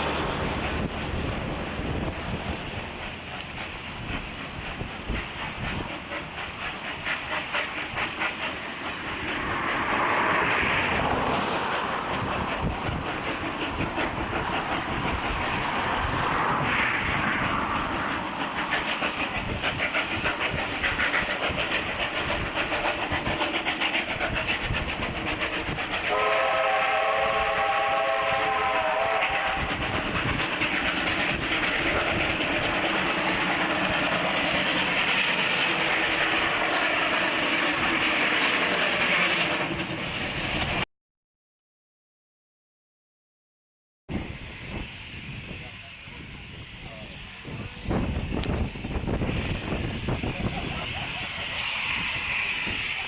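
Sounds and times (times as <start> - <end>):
steam locomotive exhaust beats: 0.0 - 40.8, 44.1 - 53.0
locomotive whistle: 26.0 - 29.9.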